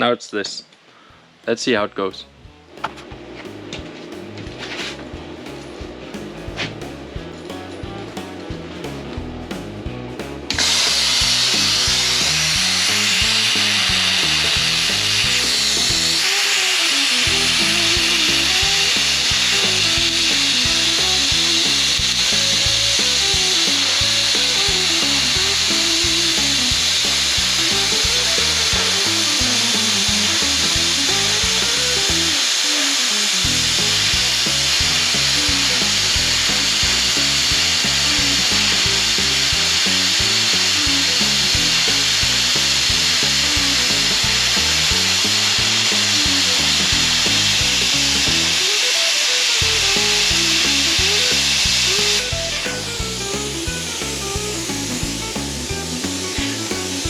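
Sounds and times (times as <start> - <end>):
background music: 1.3 - 48.9, 49.6 - 57.0
plasma cutter hissing: 10.5 - 52.4.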